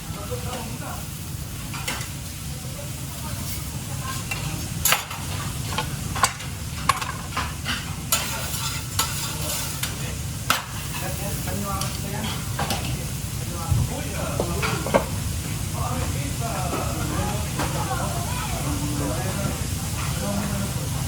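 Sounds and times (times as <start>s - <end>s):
food frying and sizzling: 0.0s - 21.0s
utensils and pans clattering: 1.6s - 2.2s, 3.4s - 13.0s, 14.3s - 15.2s.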